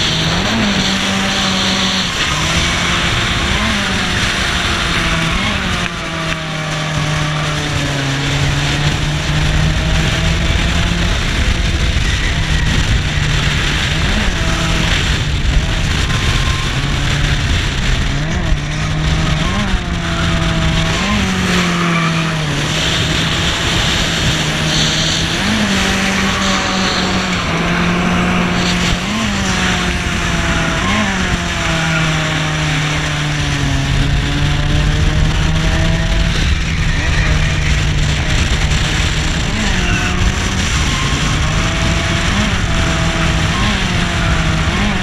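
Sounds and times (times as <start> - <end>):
car engine at high revs: 0.0 - 45.0
tyre and wind noise: 0.0 - 45.0.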